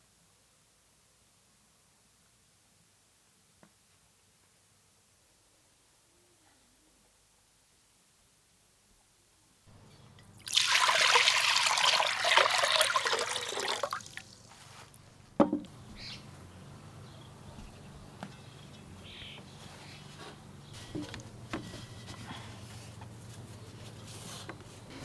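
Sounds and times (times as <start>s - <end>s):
water pouring: 10.1s - 15.1s.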